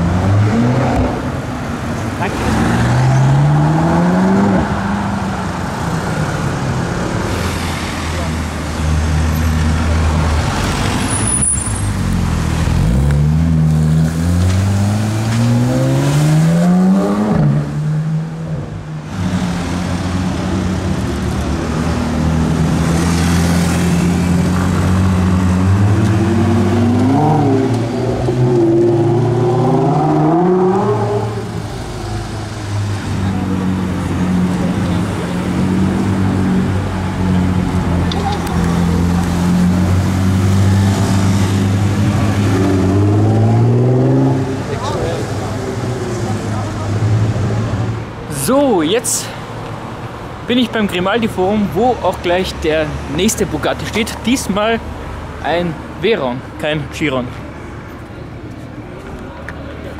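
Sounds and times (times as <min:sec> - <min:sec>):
sports car engine revving: 0:12.1 - 0:47.9.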